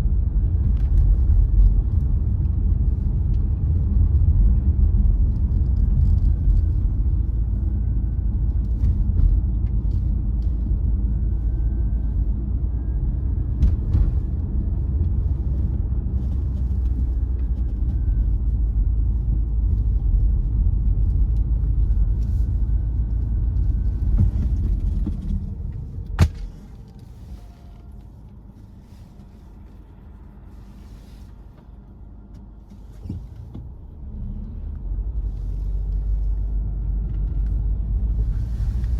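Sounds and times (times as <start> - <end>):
car driving rumble: 0.0 - 38.9.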